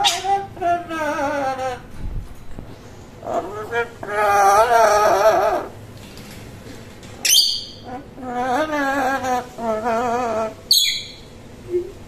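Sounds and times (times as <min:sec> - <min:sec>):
bird warbling: 0:00.0 - 0:01.8, 0:07.2 - 0:12.0
bird sharp high calls: 0:07.2 - 0:07.8, 0:10.7 - 0:11.3.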